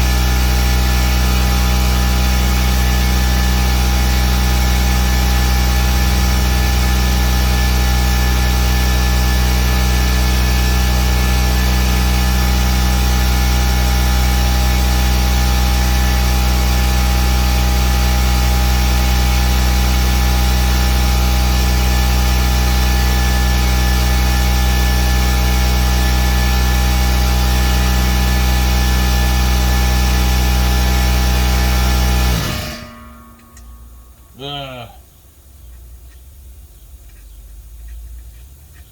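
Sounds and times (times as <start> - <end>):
machine humming: 17.8 - 35.2.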